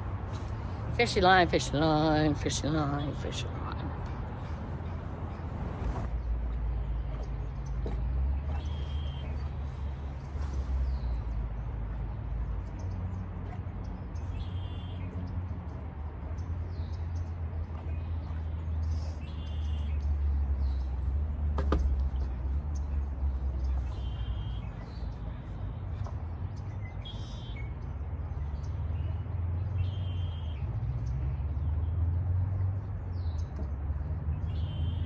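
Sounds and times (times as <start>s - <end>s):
songbird chirping: 0.3s - 35.0s.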